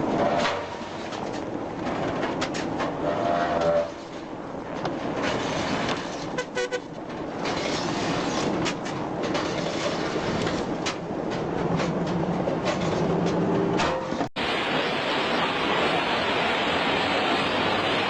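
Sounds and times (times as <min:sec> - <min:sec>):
knocks and clatter: 0:00.0 - 0:14.3
heavy vehicle rumbling: 0:00.0 - 0:18.0.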